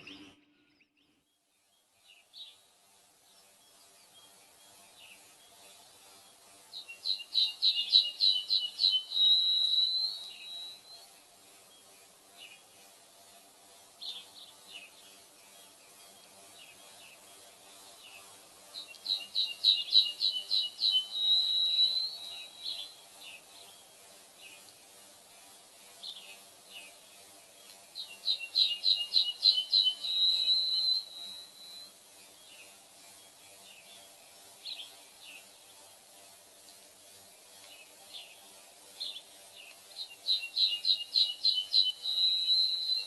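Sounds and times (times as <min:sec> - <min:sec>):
songbird singing: 0:00.0 - 0:12.9, 0:13.9 - 0:43.0.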